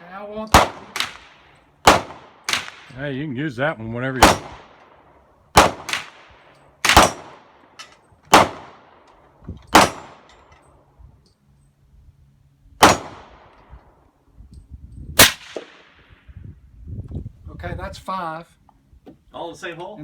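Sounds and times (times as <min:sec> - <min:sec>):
suppressed rifle shots: 0:00.5 - 0:03.0, 0:04.2 - 0:09.1, 0:09.7 - 0:10.3, 0:12.8 - 0:13.6, 0:15.2 - 0:16.0.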